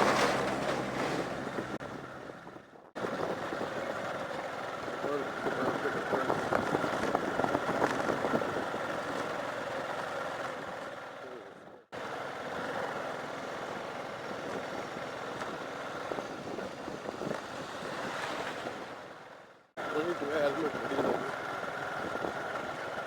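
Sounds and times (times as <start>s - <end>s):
wind noise: 0.0s - 9.2s, 14.3s - 19.1s
tyres on gravel: 0.0s - 23.0s
motorcycle engine running: 1.4s - 17.5s.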